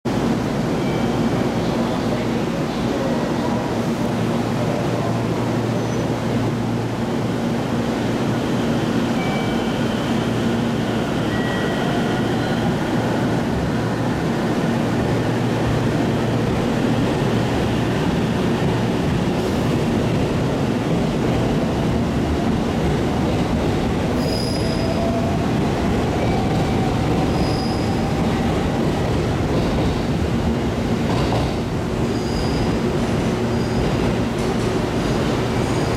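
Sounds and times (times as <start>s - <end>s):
rumble of wheels on rail: 0.1s - 35.9s
high wheel squeals: 27.3s - 28.1s.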